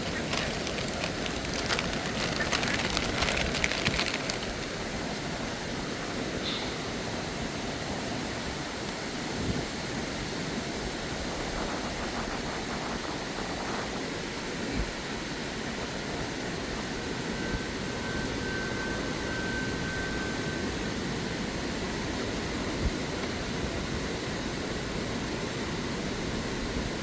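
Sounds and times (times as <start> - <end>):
crackling splashes: 0.0 - 5.0.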